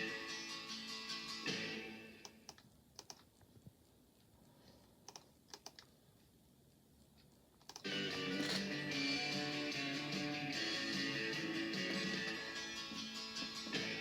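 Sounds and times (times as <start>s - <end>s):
low background hiss: 1.9s - 8.4s
guitar music: 7.9s - 14.0s.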